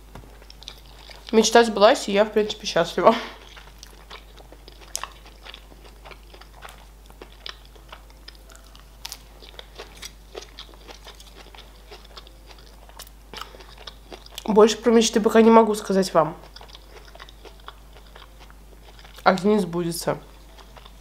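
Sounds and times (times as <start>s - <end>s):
person crunching lettuce: 0.3s - 1.4s, 3.3s - 14.5s, 16.4s - 19.4s.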